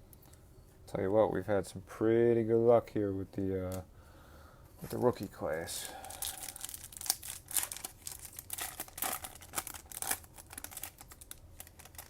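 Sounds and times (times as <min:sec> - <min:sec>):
foil wrapper crinkling: 0:04.8 - 0:12.0.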